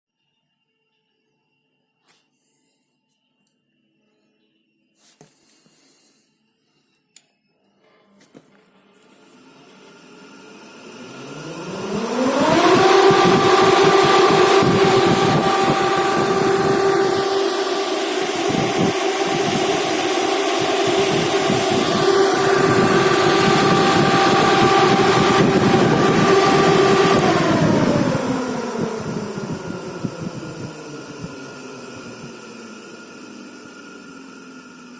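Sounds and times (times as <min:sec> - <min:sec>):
fan humming and spinning down: 0:07.8 - 0:34.9
airflow rush: 0:11.0 - 0:34.0.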